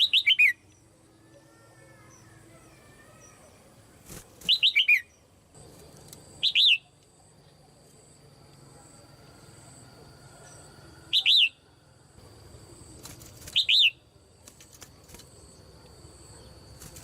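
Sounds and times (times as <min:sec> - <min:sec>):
bird calling: 0:04.4 - 0:05.2, 0:06.4 - 0:07.0, 0:10.4 - 0:11.8.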